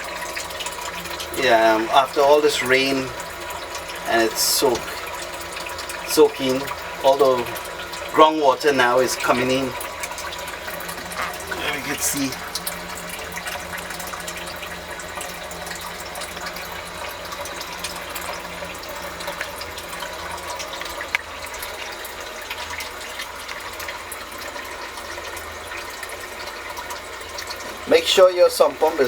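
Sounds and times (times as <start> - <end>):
sump pump hum: 0.0 - 29.0
water running: 0.0 - 29.0.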